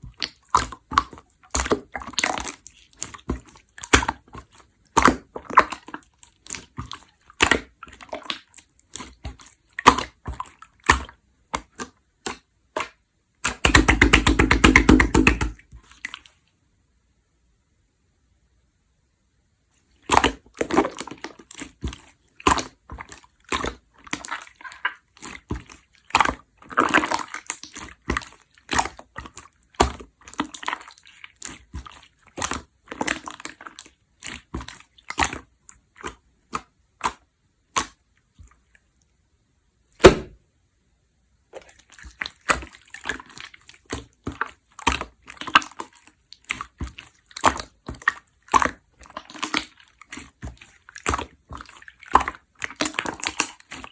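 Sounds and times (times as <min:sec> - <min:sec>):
slime squishing with sticky clicks: 0:00.0 - 0:16.4, 0:19.9 - 0:39.3, 0:40.0 - 0:40.4, 0:41.4 - 0:53.9
air bubble pops: 0:40.0 - 0:40.4.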